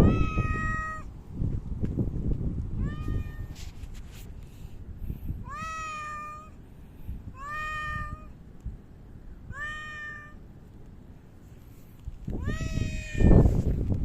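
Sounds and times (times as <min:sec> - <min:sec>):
cat meowing: 0:00.0 - 0:01.1, 0:02.8 - 0:03.6, 0:05.4 - 0:06.6, 0:07.4 - 0:08.4, 0:09.5 - 0:10.4, 0:12.4 - 0:13.5.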